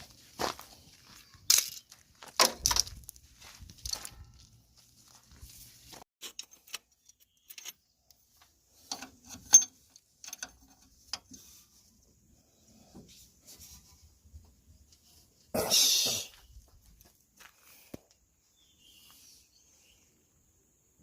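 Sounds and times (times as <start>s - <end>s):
short loud hiss: 15.7s - 16.3s.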